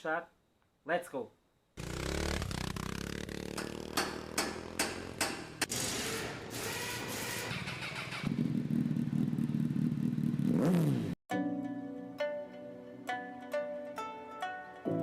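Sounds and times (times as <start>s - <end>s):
motorcycle engine running: 1.8s - 5.7s, 6.7s - 11.2s
sharp knocks: 3.5s - 5.7s.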